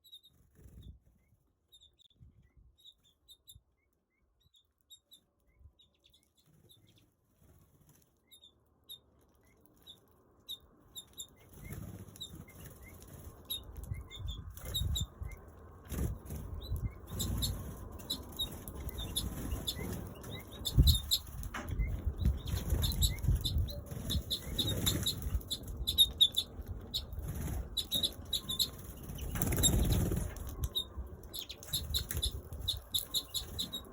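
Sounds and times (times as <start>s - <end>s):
birds flapping wings: 15.8s - 33.9s.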